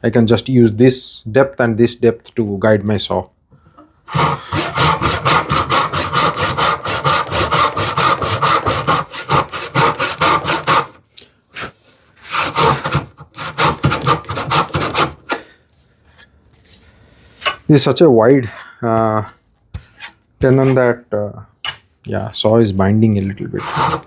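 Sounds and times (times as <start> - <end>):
hand saw cutting wood: 4.1 - 11.0, 11.6 - 15.5, 23.4 - 24.0.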